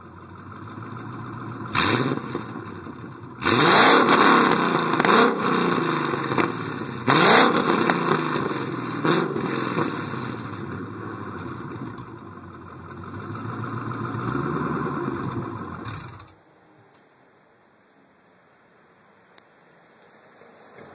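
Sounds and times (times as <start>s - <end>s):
car engine revving: 0.0s - 16.3s.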